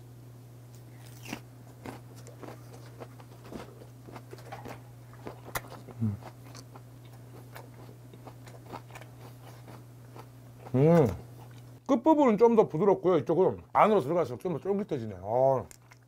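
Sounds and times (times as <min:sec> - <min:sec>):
steady low hum: 0:00.0 - 0:16.0
wet chewing clicks and smacks: 0:01.1 - 0:11.8, 0:15.6 - 0:16.0
person humming mm: 0:05.9 - 0:06.3.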